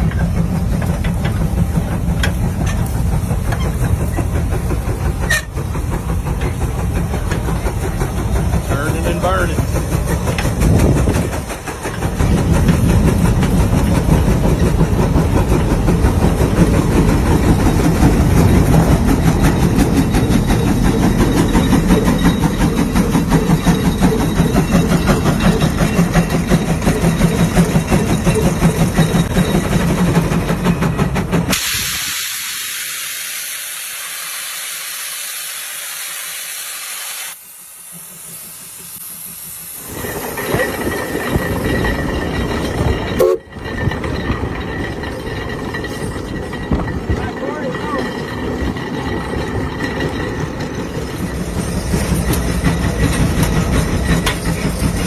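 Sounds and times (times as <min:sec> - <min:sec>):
steam hissing: 0:00.0 - 0:42.6
steam engine exhaust beats: 0:00.0 - 0:55.0.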